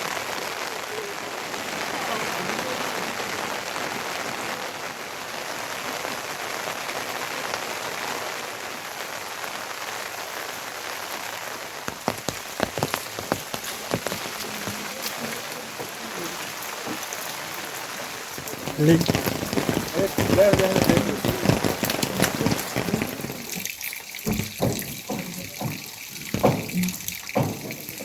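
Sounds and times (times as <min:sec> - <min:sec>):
rain falling: 0:00.0 - 0:28.0
close raindrop taps: 0:11.7 - 0:28.0.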